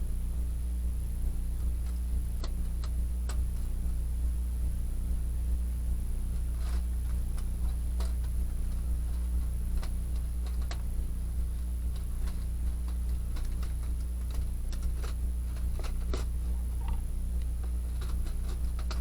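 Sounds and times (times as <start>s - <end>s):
low steady hum: 0.0s - 19.0s
wood fire crackling: 6.2s - 19.0s.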